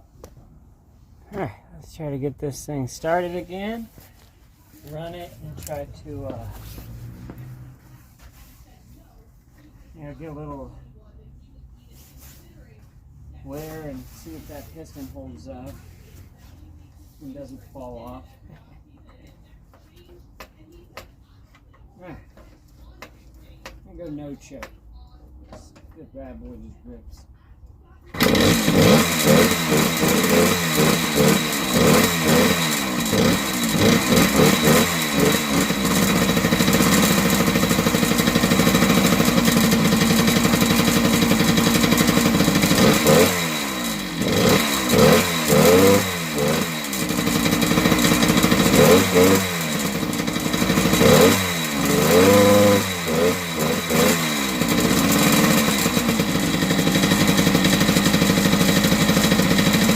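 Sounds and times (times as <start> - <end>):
two-stroke engine revving: 4.9 - 8.0, 28.1 - 59.9.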